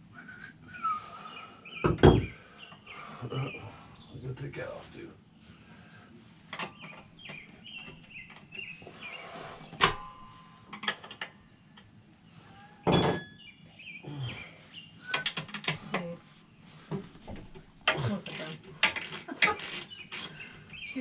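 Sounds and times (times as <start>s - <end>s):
birds chirping: 0.3s - 21.0s
metal tools clicking and knocking: 9.8s - 11.9s, 15.1s - 16.1s, 17.8s - 20.4s
metal clang: 12.9s - 13.6s
ringing metallic clink: 12.9s - 13.8s.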